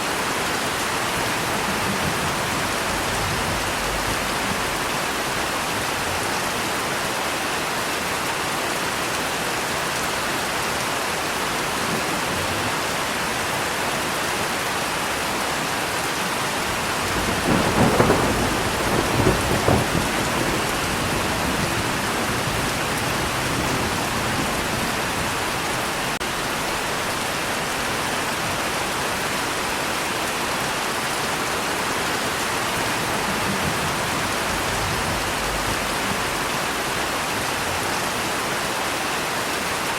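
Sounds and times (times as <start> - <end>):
steady rain: 0.0 - 39.9
thunder rumbling: 0.7 - 6.3, 16.5 - 27.1, 32.4 - 37.8.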